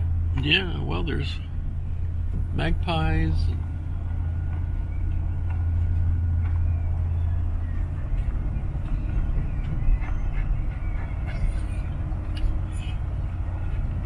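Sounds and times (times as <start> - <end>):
low rumble: 0.0 - 14.0
gulls calling in the distance: 3.4 - 14.0.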